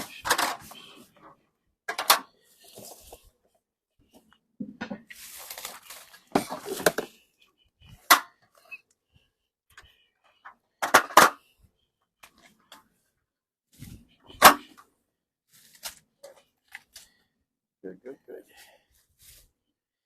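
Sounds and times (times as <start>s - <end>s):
wooden knocks and clunks: 4.6s - 5.1s
scraping and rustling: 5.0s - 7.2s.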